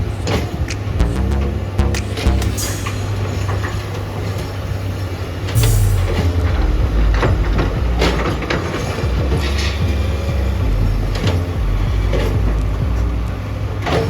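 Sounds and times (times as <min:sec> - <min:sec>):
diesel engine running: 0:05.6 - 0:13.6.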